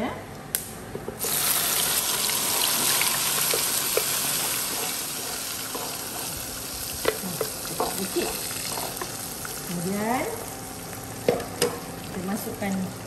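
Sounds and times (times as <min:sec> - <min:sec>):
paste sizzling in hot oil: 0:01.2 - 0:10.0
spatula knocking against pan: 0:04.7 - 0:06.3.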